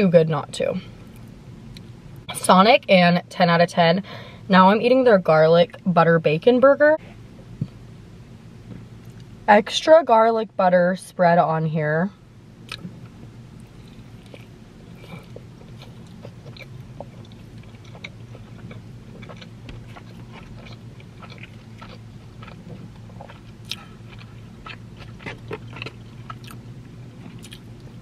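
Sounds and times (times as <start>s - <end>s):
steady low hum: 0.0s - 28.0s
person chewing: 13.6s - 28.0s.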